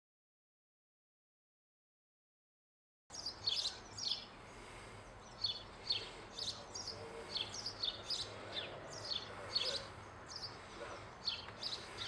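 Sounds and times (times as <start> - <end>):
small bird chirping: 3.1 - 12.0.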